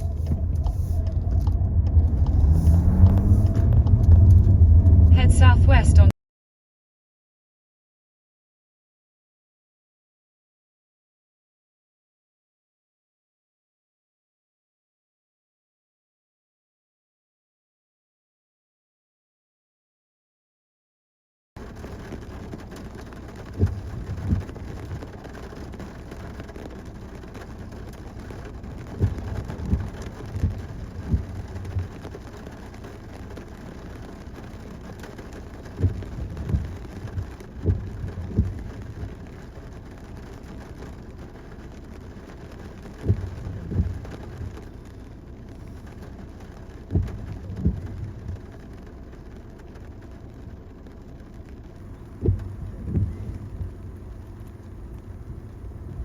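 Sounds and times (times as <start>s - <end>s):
car road noise in rain: 0.0s - 6.1s, 21.6s - 56.0s
short low thumps: 28.8s - 32.0s, 35.7s - 39.3s, 42.9s - 44.6s, 46.8s - 48.5s, 51.8s - 56.0s.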